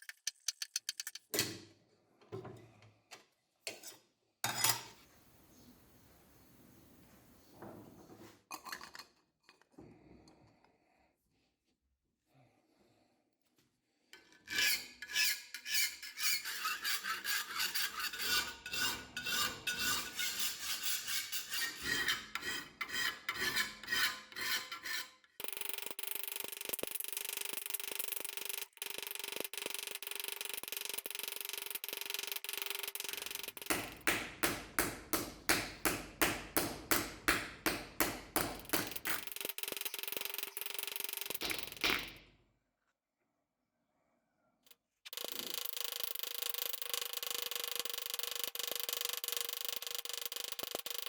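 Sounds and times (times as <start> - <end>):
metal being hand-filed: 14.2 - 25.5.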